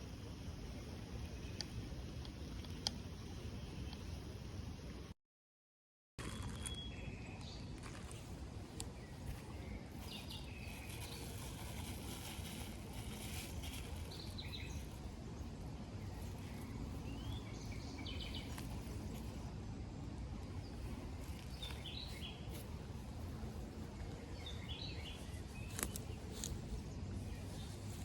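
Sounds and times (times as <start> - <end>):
steady outdoor background noise: 0.0 - 5.2, 6.2 - 28.0
birds chirping: 13.5 - 19.5, 20.2 - 28.0.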